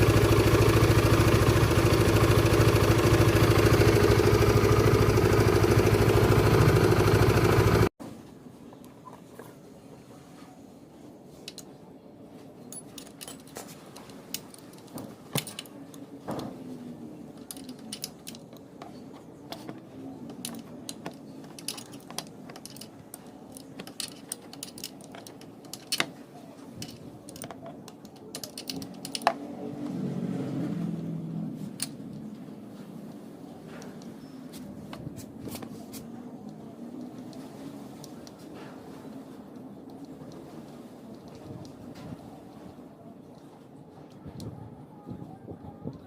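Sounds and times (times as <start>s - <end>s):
hand tools tapping metal: 17.4s - 26.2s.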